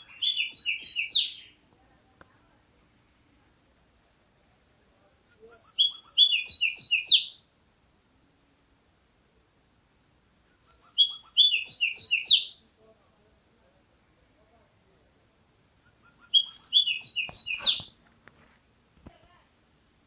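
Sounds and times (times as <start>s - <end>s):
songbird singing: 0.0s - 2.2s, 4.2s - 7.5s, 10.4s - 12.7s, 15.8s - 18.1s.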